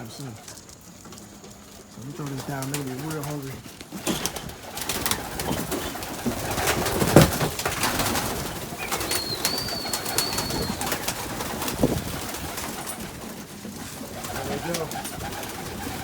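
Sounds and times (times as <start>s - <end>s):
pigeons cooing: 0.0s - 16.0s
thin high whistle-like tone: 8.9s - 11.0s.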